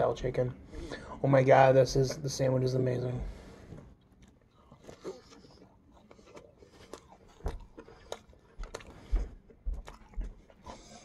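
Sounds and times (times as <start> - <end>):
person chewing crunchy food: 3.8 - 11.0.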